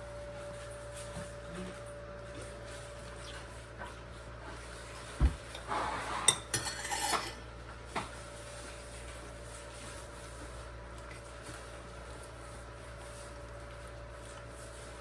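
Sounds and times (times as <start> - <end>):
dull thump: 5.2 - 5.6
utensils and dishes clattering: 5.4 - 7.4.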